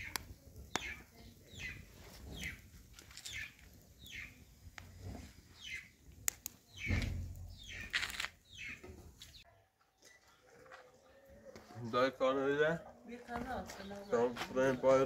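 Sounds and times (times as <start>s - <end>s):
bird chirping: 0.0s - 10.5s.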